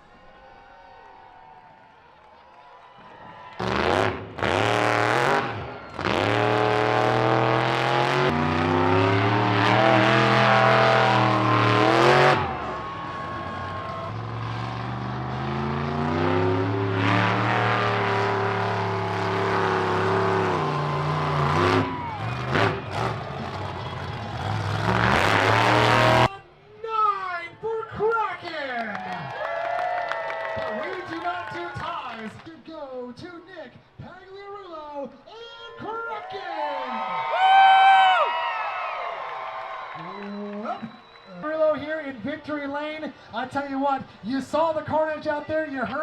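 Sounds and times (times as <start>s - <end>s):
monster truck engine revving: 3.5s - 26.3s.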